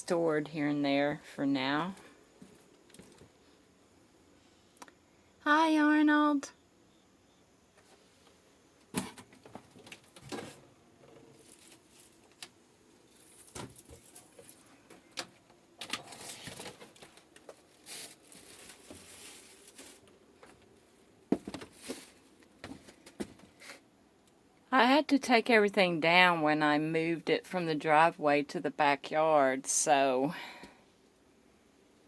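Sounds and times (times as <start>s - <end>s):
rustling: 7.8s - 15.1s, 15.8s - 23.8s.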